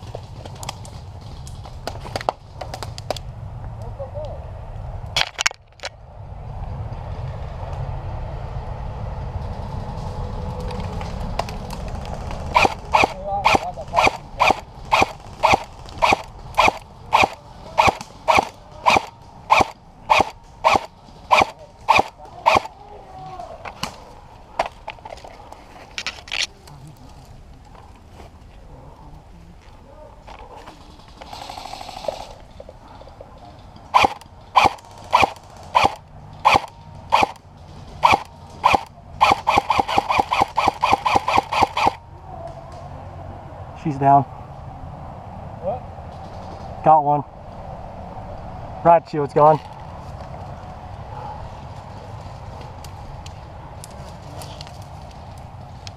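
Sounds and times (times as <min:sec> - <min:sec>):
airsoft rifle shots: 0:12.5 - 0:22.7, 0:33.9 - 0:37.4, 0:38.0 - 0:42.0.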